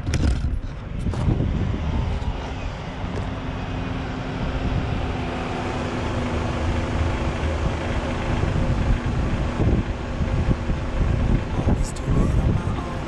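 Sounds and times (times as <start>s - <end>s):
road and wind rumble: 0.0s - 13.0s
motorcycle engine running: 4.4s - 11.6s.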